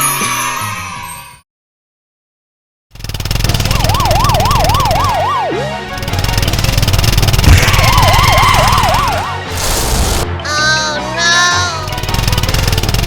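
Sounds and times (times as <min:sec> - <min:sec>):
police siren wailing: 0:03.6 - 0:06.4, 0:07.5 - 0:09.7
sharp thump: 0:07.4 - 0:08.0.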